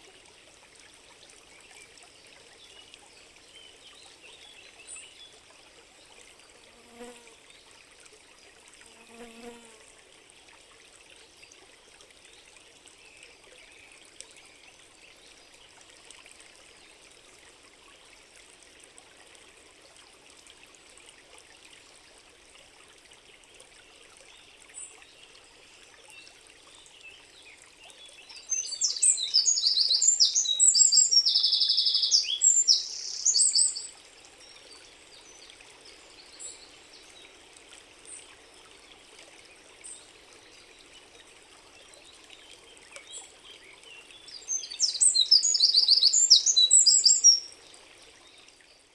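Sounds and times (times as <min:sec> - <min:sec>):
trickle of running water: 0:00.0 - 0:48.9
small bird singing: 0:28.2 - 0:33.9, 0:44.2 - 0:47.5.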